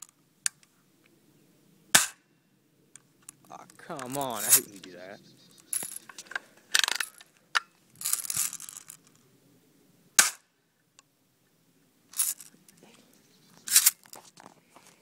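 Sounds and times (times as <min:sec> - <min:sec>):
bb gun firing: 0:02.0 - 0:02.2, 0:10.2 - 0:10.4.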